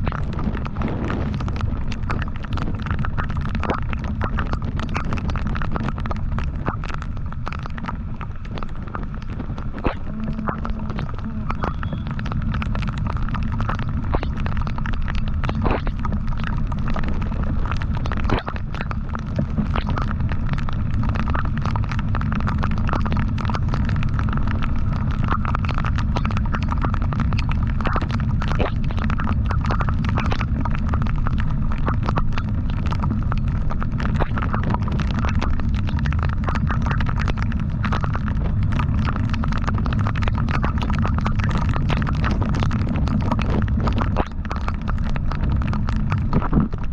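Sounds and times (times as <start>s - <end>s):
wind buffeting microphone: 0.0s - 2.8s.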